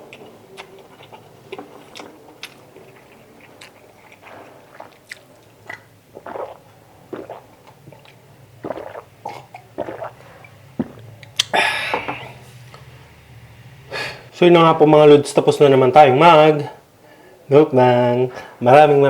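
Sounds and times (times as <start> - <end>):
person chewing food: 0.0 - 12.3.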